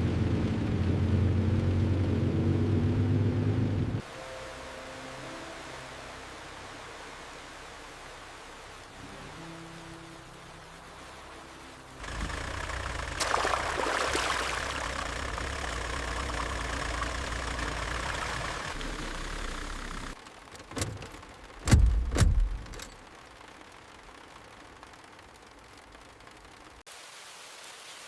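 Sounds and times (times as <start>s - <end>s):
engine idling: 12.0s - 20.6s.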